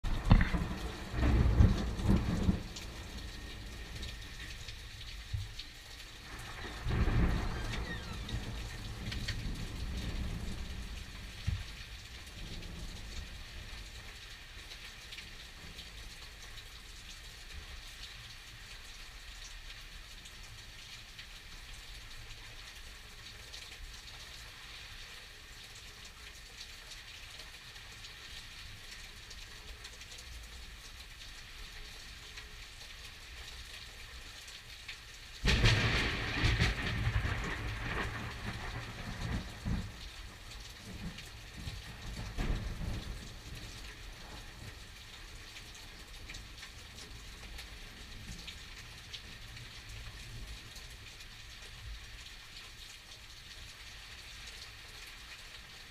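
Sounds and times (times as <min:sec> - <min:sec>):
rain falling: 0:00.0 - 0:55.9
thunder crash: 0:35.4 - 0:39.9.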